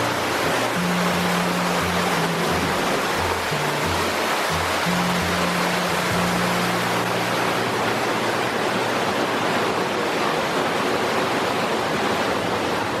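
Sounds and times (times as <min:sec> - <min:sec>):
low background music notes: 0:00.0 - 0:09.6
waterfall rushing: 0:00.0 - 0:13.0.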